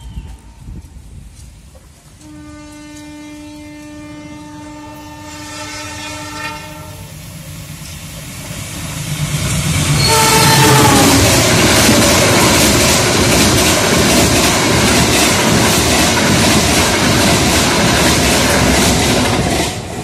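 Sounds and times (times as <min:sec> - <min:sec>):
train horn blast: 0:02.2 - 0:07.1, 0:10.0 - 0:11.4
locomotive passing close: 0:06.1 - 0:20.0.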